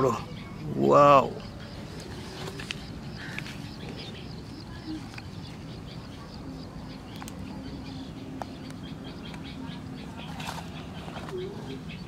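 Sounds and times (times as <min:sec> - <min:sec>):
low background noise: 0:00.0 - 0:12.0
small birds chirping: 0:00.0 - 0:12.0.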